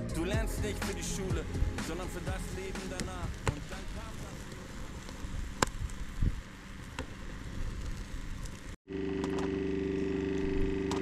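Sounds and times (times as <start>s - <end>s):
wood fire crackling: 0.6s - 8.8s
mechanical hum with low tones: 8.9s - 11.0s.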